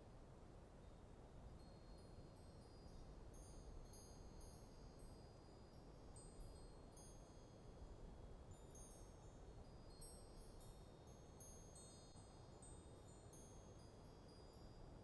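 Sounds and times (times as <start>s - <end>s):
wind chimes tinkling: 8.5s - 14.9s.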